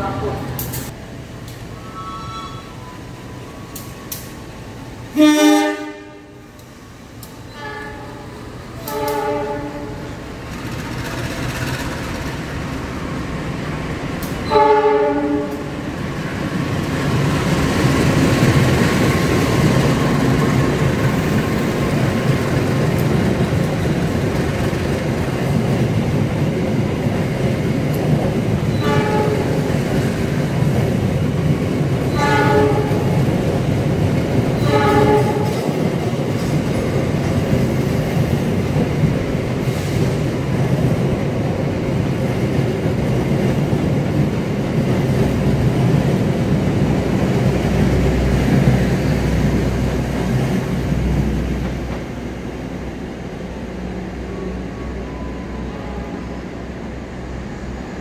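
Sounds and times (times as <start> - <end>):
train coaches rumbling past: 0.0 - 58.0
train horn blasts: 1.8 - 3.0, 5.2 - 6.6, 7.5 - 10.1, 14.4 - 15.8, 28.7 - 29.7, 32.1 - 33.2, 34.6 - 35.7.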